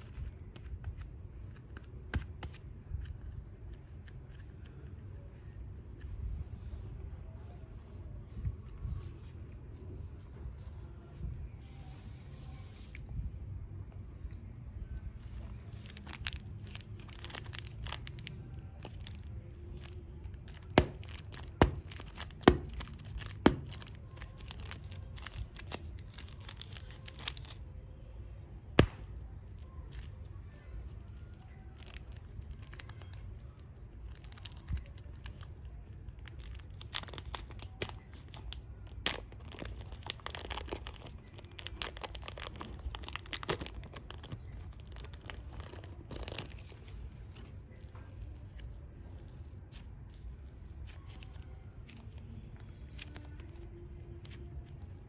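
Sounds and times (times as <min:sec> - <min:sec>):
plastic packaging crinkling and tearing: 0:15.1 - 0:27.7, 0:28.8 - 0:55.0.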